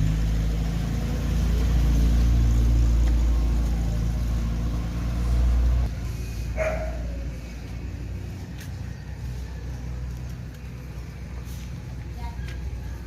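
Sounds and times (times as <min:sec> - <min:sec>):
pickup engine rumbling: 0:00.0 - 0:13.0
dog bark: 0:06.6 - 0:07.2.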